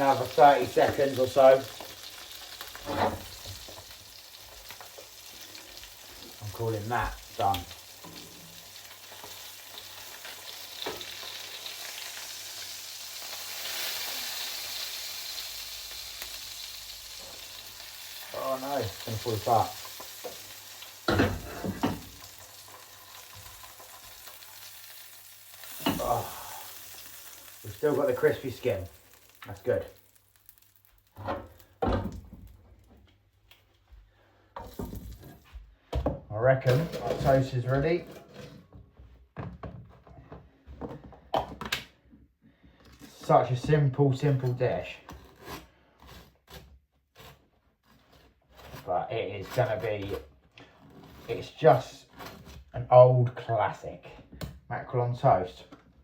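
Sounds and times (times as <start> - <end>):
fish sizzling in a frying pan: 0.0 - 31.8.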